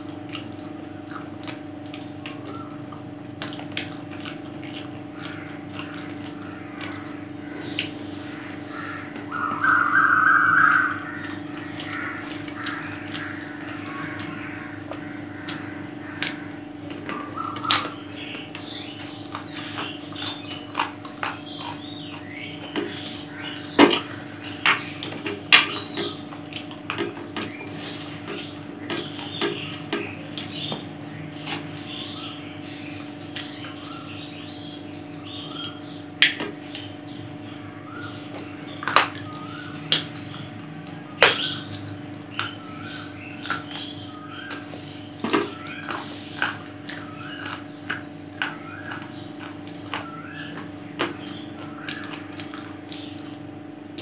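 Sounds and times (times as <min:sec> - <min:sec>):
mouth clicks and smacks: 0:00.0 - 0:08.0, 0:33.3 - 0:33.8
chewing and gnawing bones: 0:00.0 - 0:54.0
steady low hum: 0:00.0 - 0:54.0.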